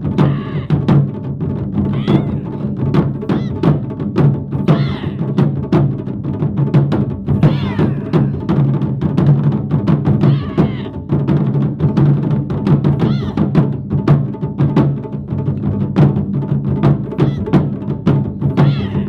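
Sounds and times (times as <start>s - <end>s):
taiko drums fast rhythm: 0.0s - 19.0s
high rising and falling cry: 1.9s - 2.6s, 3.3s - 3.7s, 4.7s - 5.4s, 7.4s - 8.4s, 10.2s - 11.0s, 13.0s - 13.5s, 17.2s - 17.6s, 18.6s - 19.0s.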